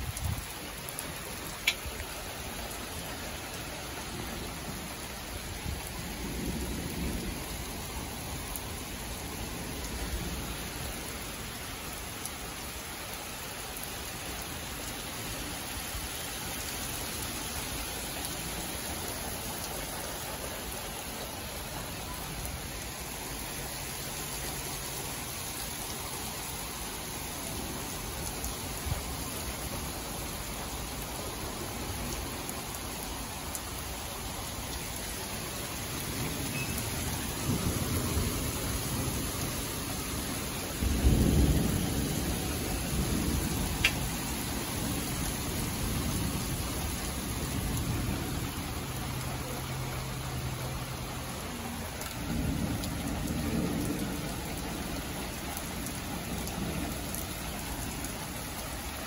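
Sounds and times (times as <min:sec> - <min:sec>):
steady rain: 0:00.0 - 0:59.0
rolling thunder: 0:37.4 - 0:46.6.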